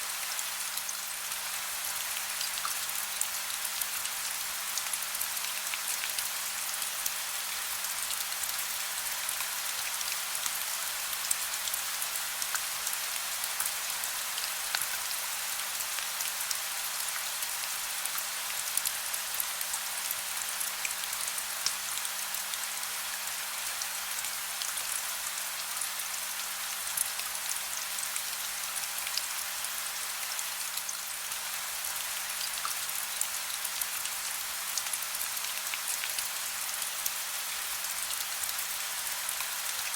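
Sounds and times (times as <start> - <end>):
soft rain with drops ticking: 0.0 - 39.9.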